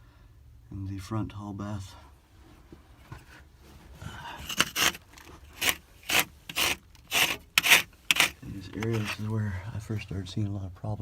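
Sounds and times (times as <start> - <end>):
scraping in dirt tunnel: 4.0 - 9.5
short sharp scrapes: 4.4 - 9.3.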